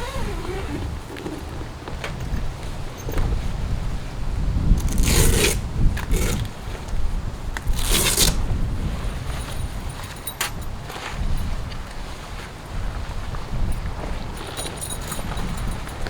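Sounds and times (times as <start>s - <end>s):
short zipping or scraping noises: 0.0s - 1.4s, 4.8s - 6.6s, 7.7s - 8.5s
wind buffeting microphone: 0.0s - 16.0s.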